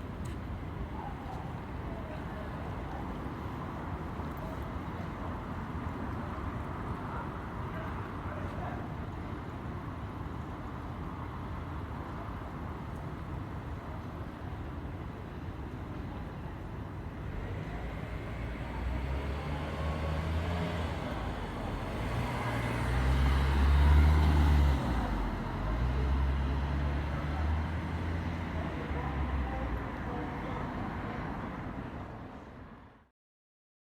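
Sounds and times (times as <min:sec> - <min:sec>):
city street traffic: 0:00.0 - 0:33.1
large vehicle engine passing: 0:17.4 - 0:29.5.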